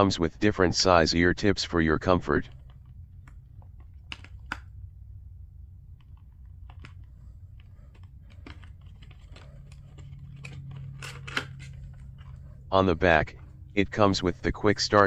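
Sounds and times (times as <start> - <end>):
low steady hum: 0.0 - 15.0
plastic parts clicking and tapping: 2.4 - 4.8, 6.0 - 13.9.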